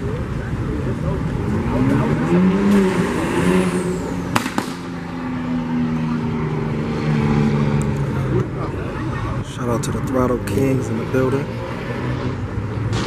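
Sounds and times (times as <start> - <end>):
sharp cracks: 4.3 - 5.1.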